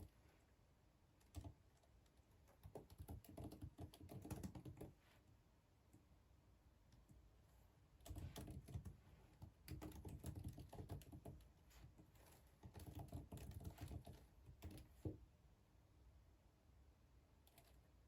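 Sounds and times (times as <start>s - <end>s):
typing on keyboard: 1.2s - 5.0s, 8.0s - 11.5s, 12.2s - 15.2s, 17.4s - 17.8s.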